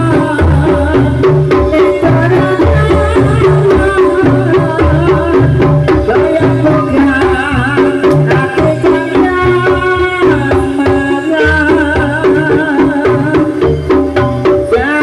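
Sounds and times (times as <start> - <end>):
hand drums beating: 0.0 - 15.0.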